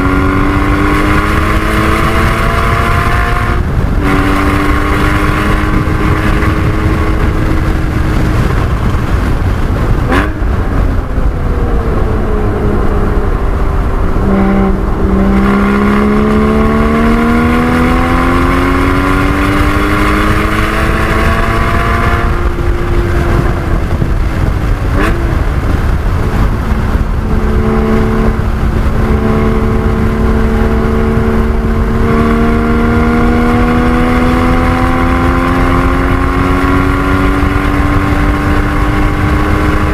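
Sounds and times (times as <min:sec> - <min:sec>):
car engine accelerating: 0:00.0 - 0:39.9
road and wind noise: 0:00.0 - 0:39.9.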